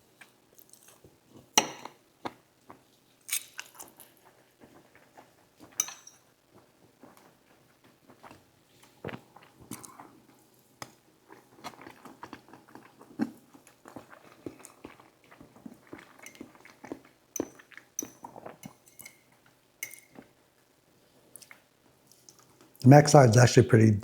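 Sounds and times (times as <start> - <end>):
chewing and biting food: 11.3 - 18.6.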